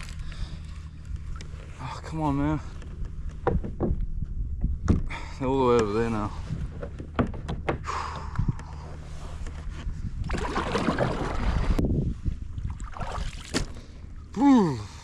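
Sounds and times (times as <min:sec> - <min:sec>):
sharp knocks: 0:03.3 - 0:04.0, 0:06.8 - 0:07.9
water sloshing around kayak: 0:09.0 - 0:11.8, 0:12.4 - 0:14.4.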